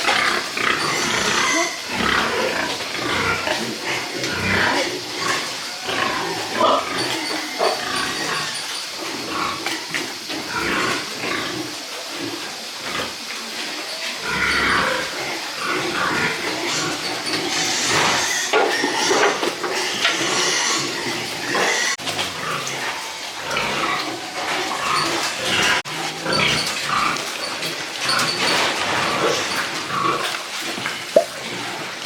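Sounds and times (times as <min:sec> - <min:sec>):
pigs grunting: 0:00.0 - 0:32.0.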